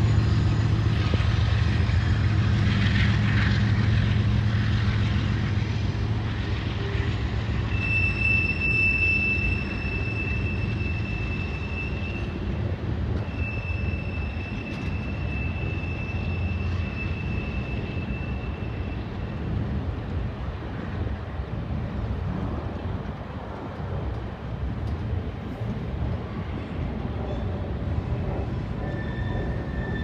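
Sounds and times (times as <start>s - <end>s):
train wheels rumbling on rail: 0.0s - 30.0s
high wheel squeal: 6.9s - 12.6s, 13.2s - 19.3s, 28.7s - 30.0s.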